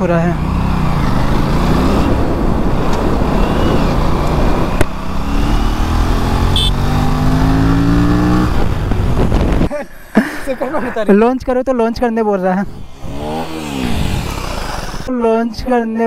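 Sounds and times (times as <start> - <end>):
motorcycle engine accelerating: 0.0 - 9.7, 12.7 - 15.1.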